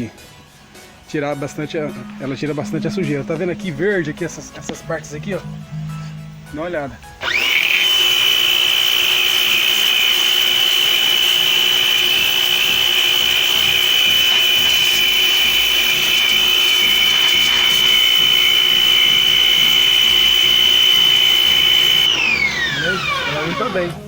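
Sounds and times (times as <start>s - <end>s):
pressure washer motor whine: 1.9s - 5.9s, 6.6s - 24.0s.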